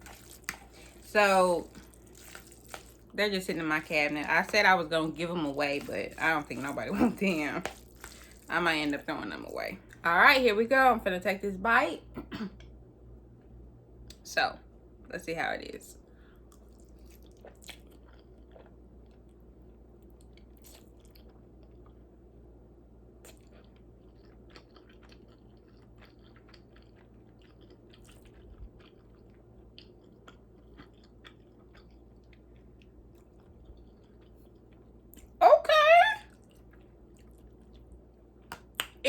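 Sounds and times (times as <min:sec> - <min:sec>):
chewing noodles: 0:00.0 - 0:03.2, 0:04.0 - 0:09.0, 0:16.5 - 0:22.0, 0:23.2 - 0:35.4, 0:36.3 - 0:38.9.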